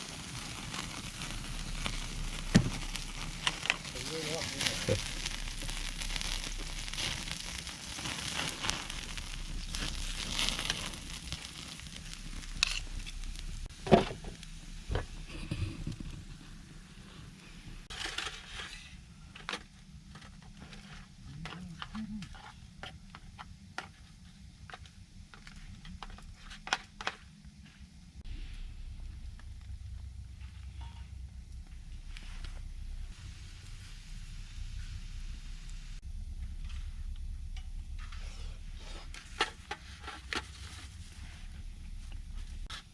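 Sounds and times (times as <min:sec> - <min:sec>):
campfire crackling and popping: 0:00.0 - 0:27.6, 0:28.2 - 0:42.9
fire hiss: 0:00.0 - 0:42.9.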